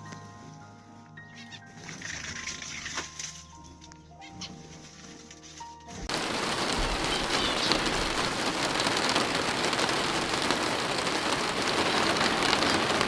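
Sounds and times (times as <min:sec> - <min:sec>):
quiet music: 0:00.0 - 0:06.2
rain pattering: 0:06.1 - 0:13.0.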